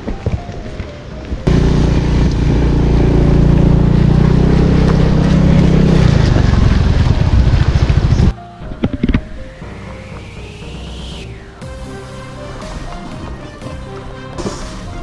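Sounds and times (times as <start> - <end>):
engine running loudly: 1.5 - 8.4.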